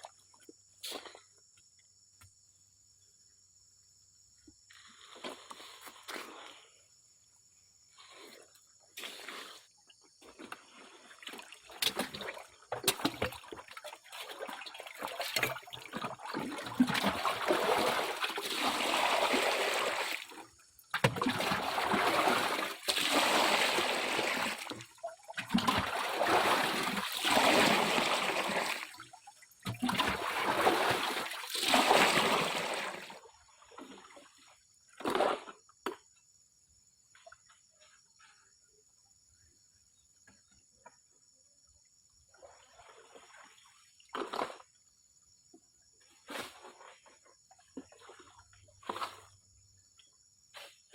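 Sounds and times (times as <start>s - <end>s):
water sloshing and splashing: 10.2s - 35.7s, 42.3s - 44.8s, 46.2s - 49.8s.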